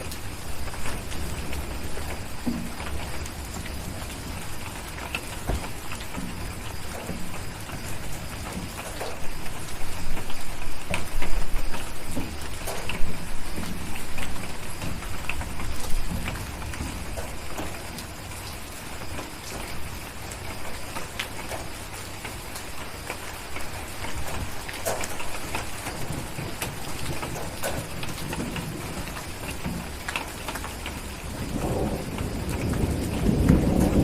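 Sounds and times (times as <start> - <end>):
wood fire crackling and popping: 0.0 - 19.7
distant thunder rumbling: 0.0 - 34.0
steady rain falling: 0.0 - 34.0.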